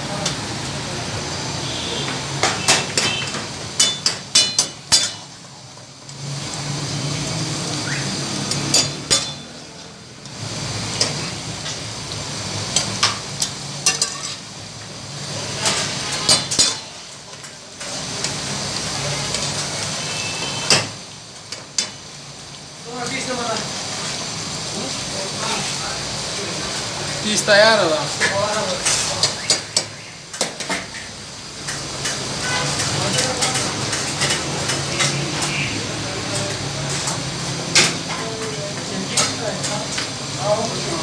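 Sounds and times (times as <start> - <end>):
food sizzling in metal pan: 0.0 - 41.0
metal ladle clanking against pan: 2.5 - 5.3, 8.6 - 9.5.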